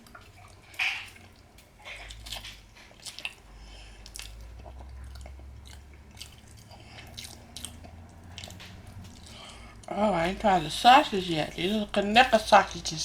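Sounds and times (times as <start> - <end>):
person chewing and biting: 0.0 - 9.9.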